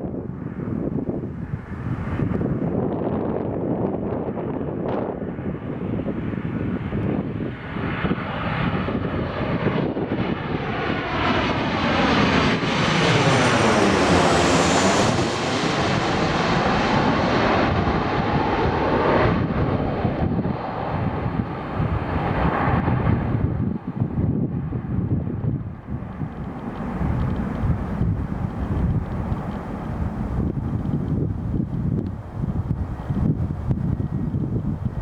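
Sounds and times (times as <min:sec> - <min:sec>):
jet airliner passing: 0:00.0 - 0:35.0.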